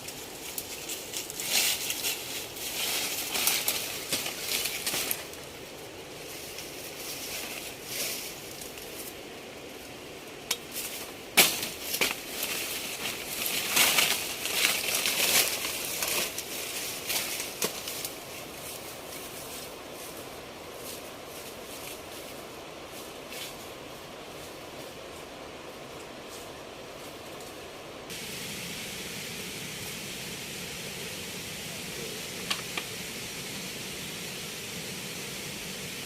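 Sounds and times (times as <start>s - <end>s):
material crumpling and crackling: 11.7s - 18.2s.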